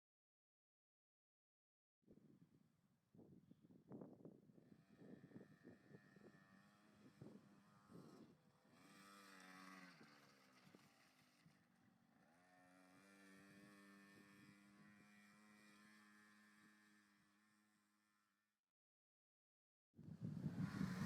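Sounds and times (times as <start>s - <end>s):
motocross bike engine revving: 5.2s - 17.6s, 20.4s - 21.0s.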